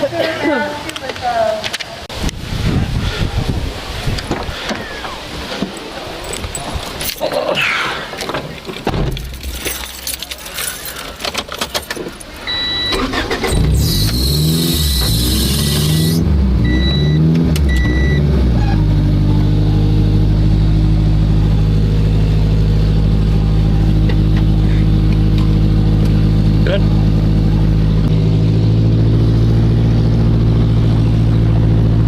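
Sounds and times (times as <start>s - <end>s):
car engine starting and idling: 4.5s - 32.0s
keys rattling and clicking: 5.7s - 7.5s, 8.5s - 12.5s
car warning chime beeping: 12.4s - 13.7s, 16.6s - 18.3s.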